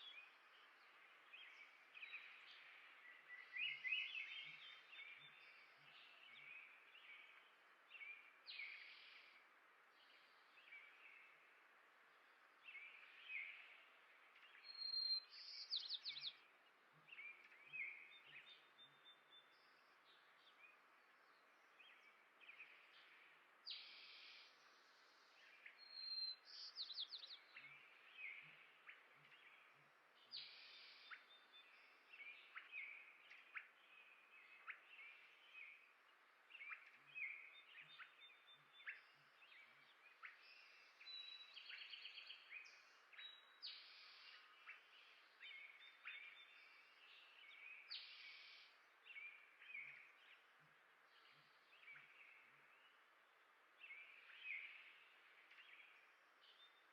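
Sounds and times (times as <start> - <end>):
songbirds chirping: 0.0 - 56.9.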